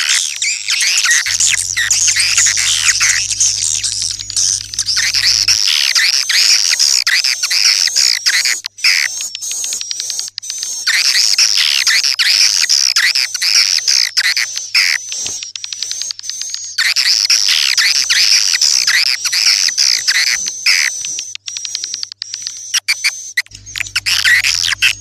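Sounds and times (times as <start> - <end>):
swiftlets twittering: 0.9 - 5.8, 23.4 - 25.0.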